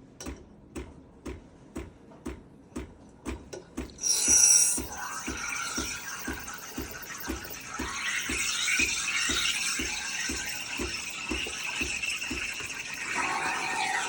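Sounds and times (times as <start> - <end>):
steam wand hissing: 4.0 - 14.0.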